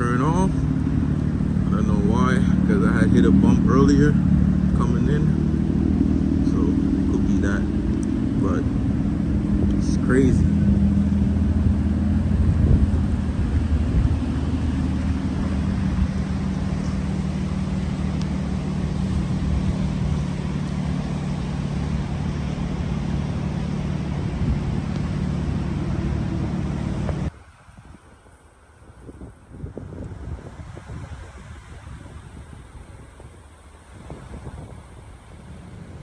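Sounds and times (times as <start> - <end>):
car engine idling: 0.0 - 27.3
rain falling: 0.0 - 28.8.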